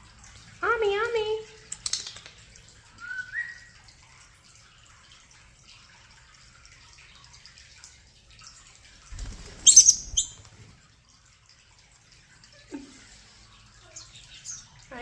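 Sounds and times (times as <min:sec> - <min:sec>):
starlings chattering and clicking: 0:01.6 - 0:02.6, 0:09.2 - 0:10.5, 0:13.9 - 0:15.0
bird rising whistle: 0:09.7 - 0:10.3.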